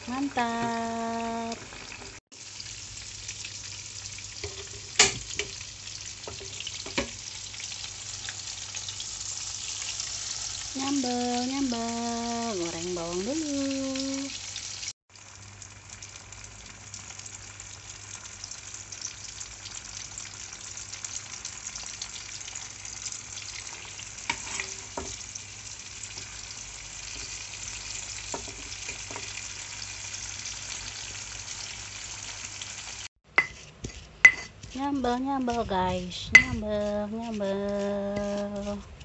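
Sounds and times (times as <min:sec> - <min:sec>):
vegetables sizzling in oil: 0:00.0 - 0:33.6
metal ladle knocking against pan: 0:36.3 - 0:36.6.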